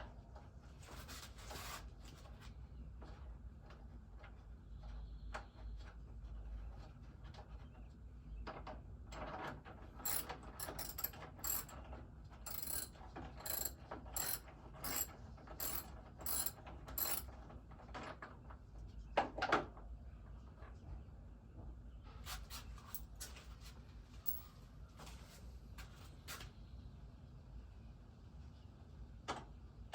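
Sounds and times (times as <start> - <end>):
metallic clatter: 10.1 - 11.7, 12.5 - 17.2
ratchet wrench clicking: 10.1 - 11.7, 12.5 - 17.2.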